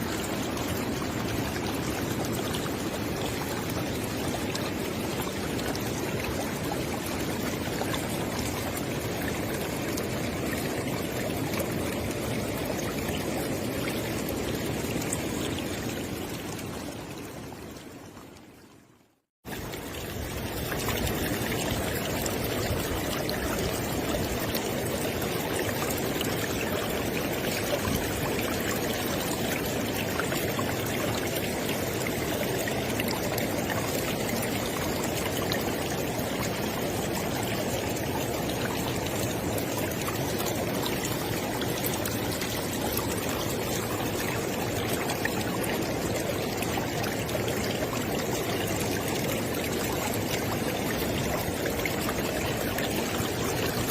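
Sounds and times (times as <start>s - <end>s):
river water rushing: 19.5s - 53.9s.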